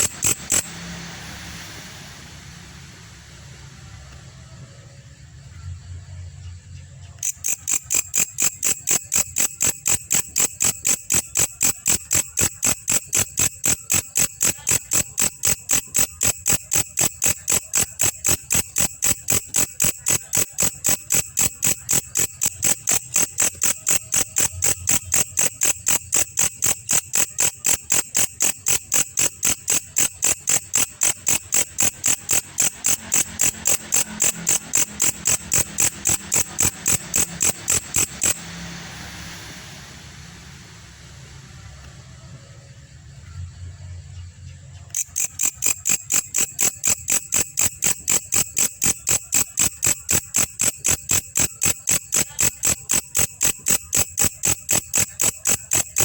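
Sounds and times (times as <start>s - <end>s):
insect chirping: 0.0s - 56.0s.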